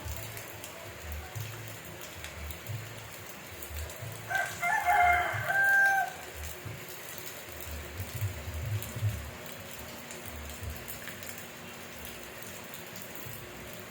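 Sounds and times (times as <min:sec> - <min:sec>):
steady rain: 0:00.0 - 0:13.9
rooster crowing: 0:04.3 - 0:06.3.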